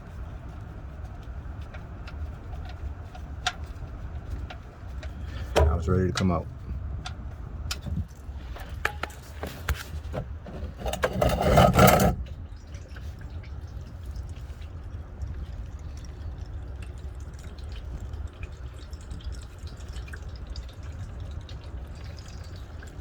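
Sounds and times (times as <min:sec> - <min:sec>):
oil trickling and dripping: 0:00.0 - 0:23.0
clicks and knocks: 0:08.6 - 0:12.2.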